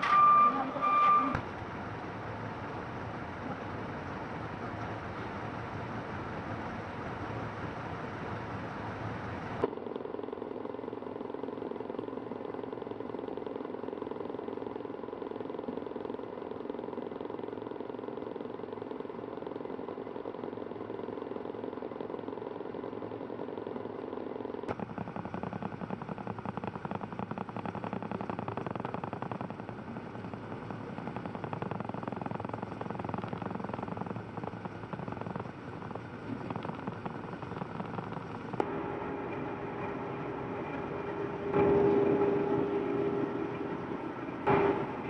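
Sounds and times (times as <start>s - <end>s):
road noise: 0.0s - 9.7s, 29.8s - 45.0s
truck engine hum: 0.0s - 9.7s, 24.7s - 45.0s.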